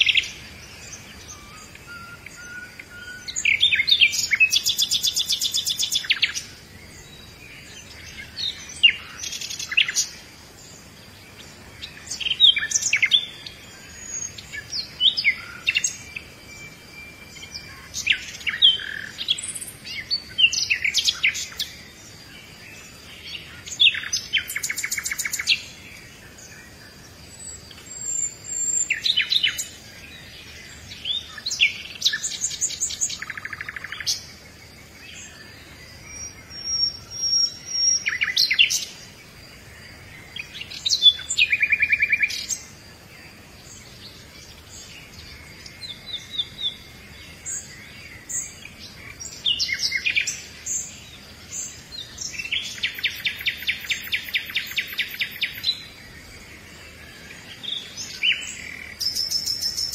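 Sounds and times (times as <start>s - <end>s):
birdsong with chirps and trills: 0.0s - 59.9s.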